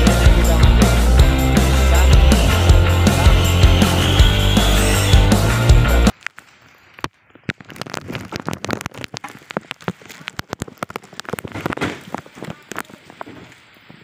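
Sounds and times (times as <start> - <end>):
rock music: 0.0 - 6.1
heavy rain on microphone: 5.5 - 14.0.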